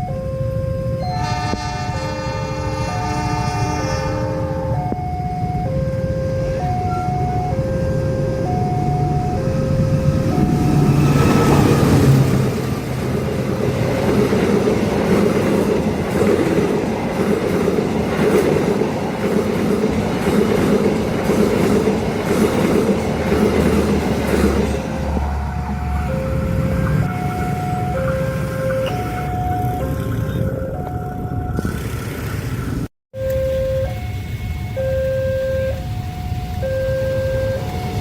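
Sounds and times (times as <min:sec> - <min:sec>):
level-crossing alarm alternating tones: 0:00.0 - 0:02.4, 0:04.4 - 0:13.0, 0:20.6 - 0:31.7, 0:33.2 - 0:38.0
diesel locomotive engine: 0:00.0 - 0:38.0
train wheels clattering over rails: 0:10.3 - 0:26.1.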